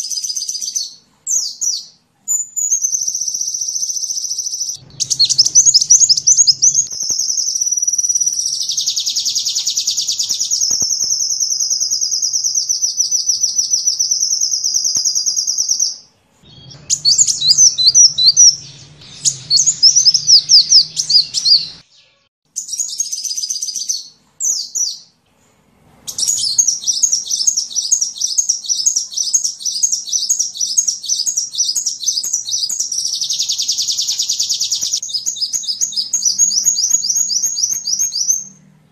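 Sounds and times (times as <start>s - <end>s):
sunbird song trills and chirps: 0.0s - 25.1s, 26.1s - 38.9s.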